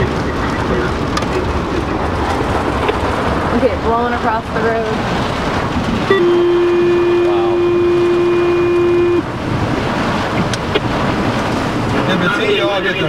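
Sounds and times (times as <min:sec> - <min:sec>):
car driving in heavy rain: 0:00.0 - 0:13.0
horn sounding: 0:06.0 - 0:09.4.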